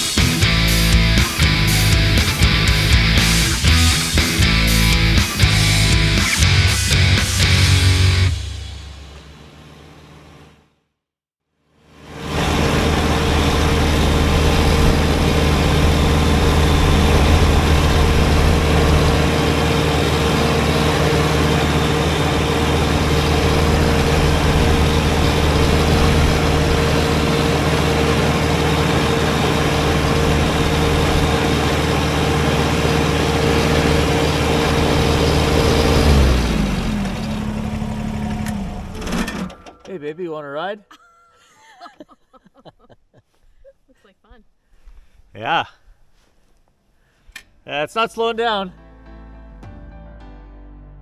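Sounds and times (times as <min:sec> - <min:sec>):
tractor diesel engine running: 0:00.0 - 0:10.7, 0:12.0 - 0:40.4.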